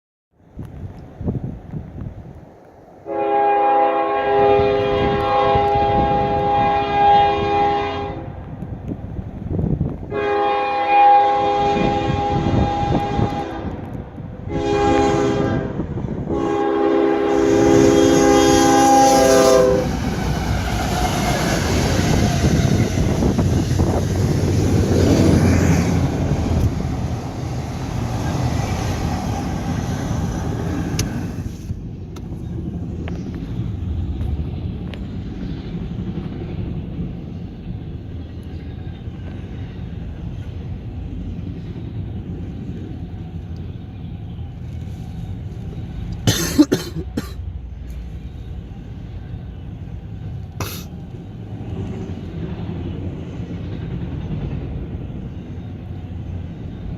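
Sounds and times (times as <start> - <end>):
rail cars clattering past: 0.5 - 56.9
locomotive air horn blasts: 3.0 - 8.4, 10.1 - 20.0
locomotive engine: 10.1 - 56.9.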